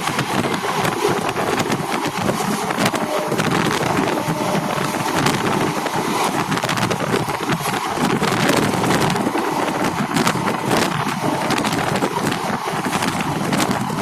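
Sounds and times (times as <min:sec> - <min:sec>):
sharp clacks of train: 0:00.0 - 0:14.0
train rattling and rushing: 0:00.0 - 0:14.0.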